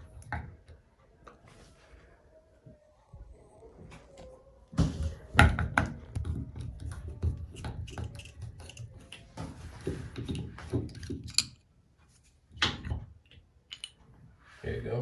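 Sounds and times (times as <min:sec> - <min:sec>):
screwdriver clicking on metal parts: 0:07.9 - 0:08.9.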